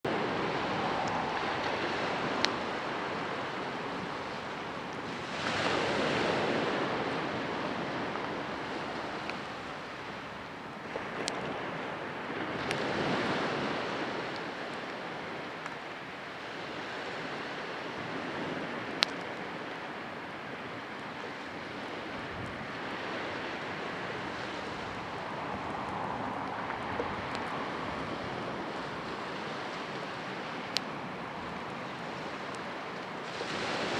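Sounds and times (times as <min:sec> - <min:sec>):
sea waves washing onto shore: 0:00.0 - 0:33.9.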